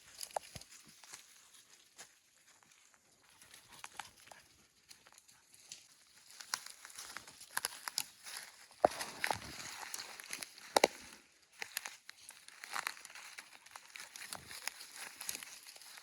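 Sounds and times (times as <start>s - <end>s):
crackling through dry brush: 0.0s - 16.0s.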